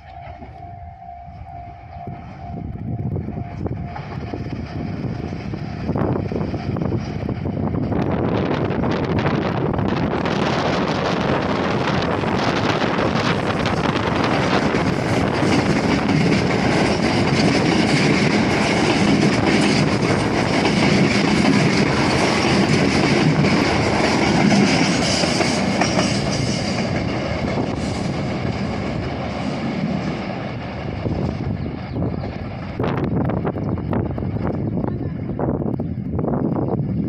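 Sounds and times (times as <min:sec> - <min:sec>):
train wheels clacking over rail joints: 0:10.2 - 0:32.8.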